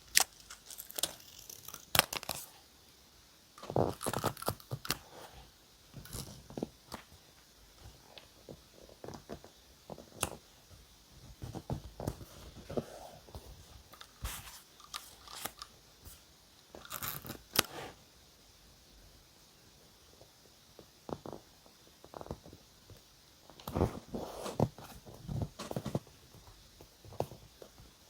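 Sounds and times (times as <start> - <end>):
paper crinkling and rustling: 0.1 - 2.5, 11.4 - 16.2, 23.6 - 26.1.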